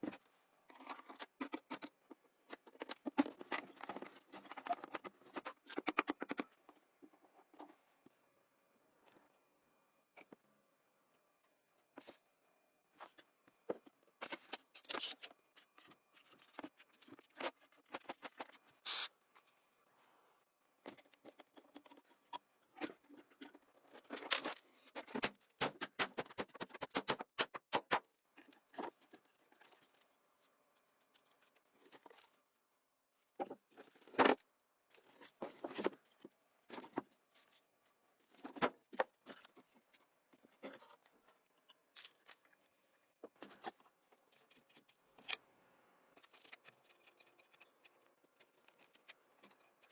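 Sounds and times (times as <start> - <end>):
hand work clicks and scrapes: 46.1 - 49.9.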